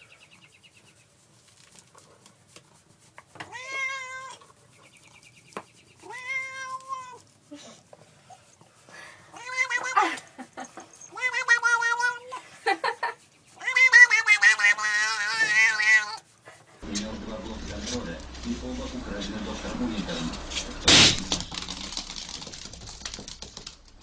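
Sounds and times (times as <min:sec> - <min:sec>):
pet animal crying: 0:03.5 - 0:04.5, 0:06.0 - 0:07.2, 0:09.3 - 0:10.2, 0:11.0 - 0:12.5, 0:13.6 - 0:16.2.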